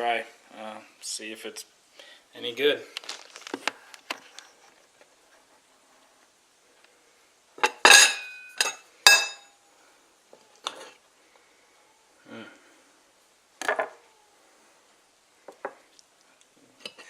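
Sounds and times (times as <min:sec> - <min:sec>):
cutlery clinking on plate: 0:07.6 - 0:09.5.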